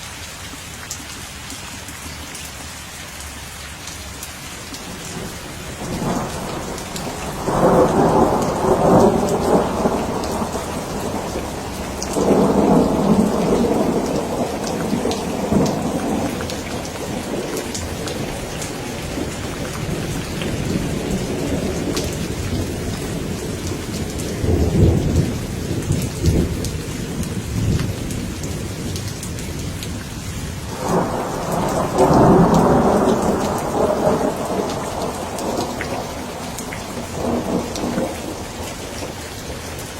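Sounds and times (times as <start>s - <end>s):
steady rain: 0.0s - 39.9s
thunder rolling: 5.1s - 28.8s, 30.6s - 39.1s.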